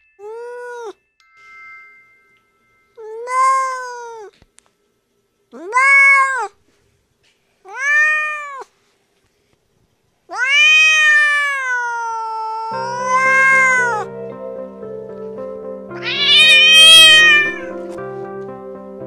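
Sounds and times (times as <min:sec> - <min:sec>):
music: 0:00.0 - 0:03.0, 0:12.7 - 0:19.0
cat meowing: 0:03.2 - 0:04.3, 0:05.6 - 0:06.6, 0:07.7 - 0:08.7, 0:10.3 - 0:14.1, 0:16.0 - 0:17.8.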